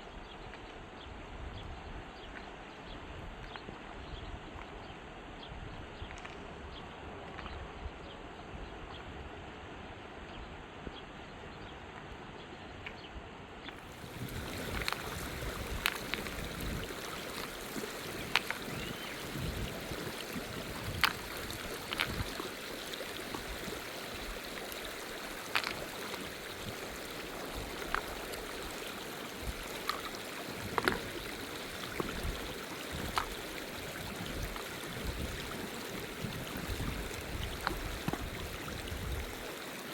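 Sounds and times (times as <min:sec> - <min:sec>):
rushing river water: 0:13.8 - 0:39.9.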